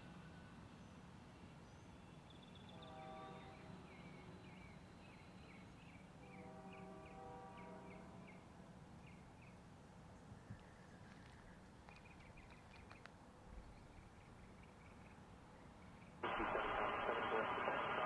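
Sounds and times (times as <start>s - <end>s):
steady low hum: 16.0s - 18.0s.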